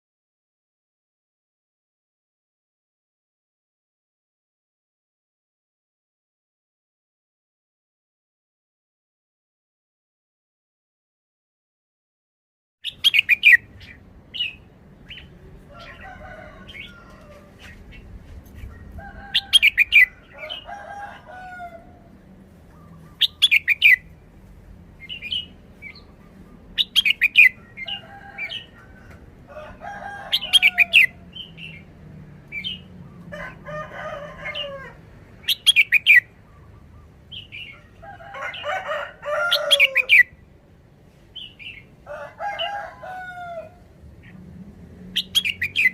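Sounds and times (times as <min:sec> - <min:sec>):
bird singing bright phrases: 0:12.8 - 0:20.7, 0:22.6 - 0:24.4, 0:25.0 - 0:28.8, 0:30.4 - 0:33.3, 0:35.4 - 0:38.7, 0:41.3 - 0:42.0, 0:45.2 - 0:45.9.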